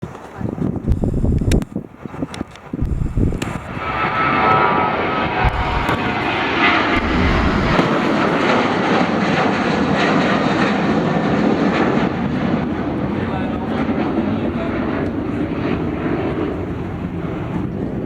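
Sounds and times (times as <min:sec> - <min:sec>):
jet engines at high thrust: 0:00.0 - 0:18.0.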